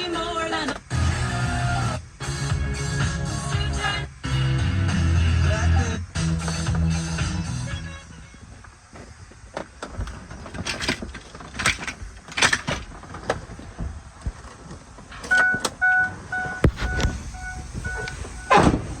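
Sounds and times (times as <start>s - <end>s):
knocks and clunks: 9.0s - 19.0s
short electronic beeps: 15.3s - 18.7s.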